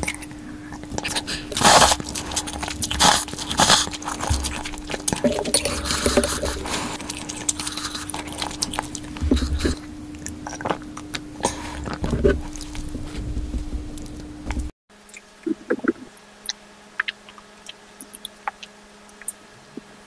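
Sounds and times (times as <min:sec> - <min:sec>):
chewing and mouth sounds: 0:00.0 - 0:13.2, 0:14.0 - 0:19.9
faint steady hum: 0:00.0 - 0:20.0.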